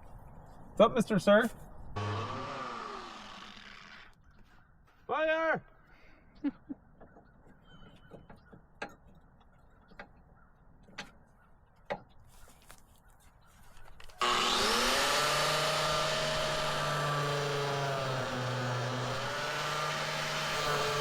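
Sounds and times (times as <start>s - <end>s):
angle grinder whining: 2.0s - 4.1s, 14.2s - 21.0s.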